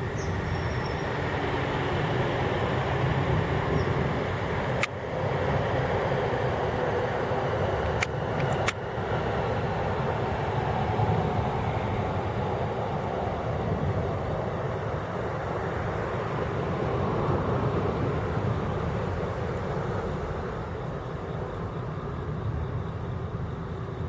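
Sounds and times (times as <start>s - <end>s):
distant road traffic rumble: 0.0s - 24.0s
sharp clicks: 7.8s - 8.8s.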